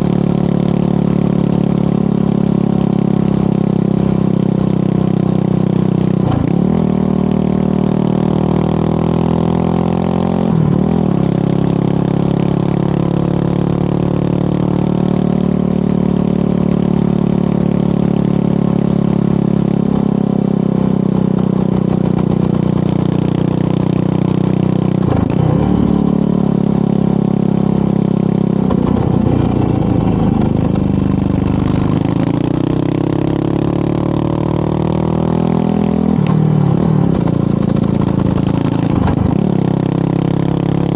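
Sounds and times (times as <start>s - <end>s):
motorcycle engine and exhaust: 0.0s - 40.9s.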